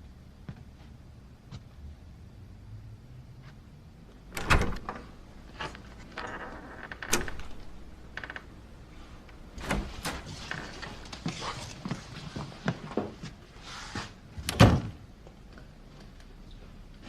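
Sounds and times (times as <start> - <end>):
door clicks and knocks: 4.3 - 5.2, 6.1 - 8.5
door squeaks: 6.1 - 8.4.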